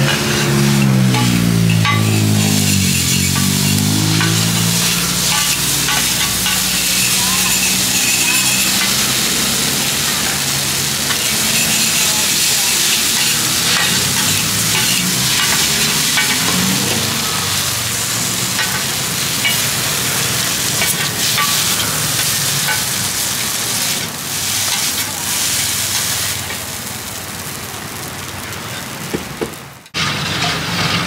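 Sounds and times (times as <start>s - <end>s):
metal spatula scraping pan: 0.0s - 26.4s
noodles sizzling on pan: 0.0s - 30.9s
spatula clinking on pan: 1.1s - 9.1s.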